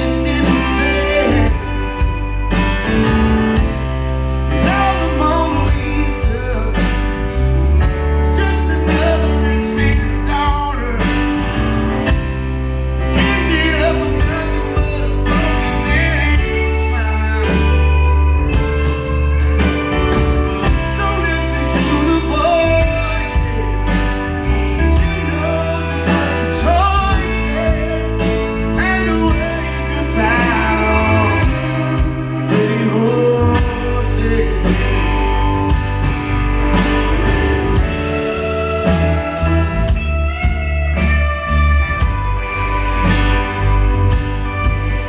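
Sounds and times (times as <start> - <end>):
person singing: 0.0 - 12.4, 13.0 - 35.9
rock band playing: 0.0 - 45.0.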